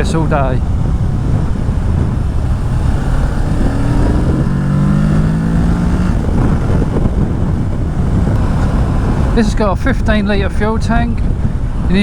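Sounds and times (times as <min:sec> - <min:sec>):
motorcycle engine accelerating: 0:00.0 - 0:09.4.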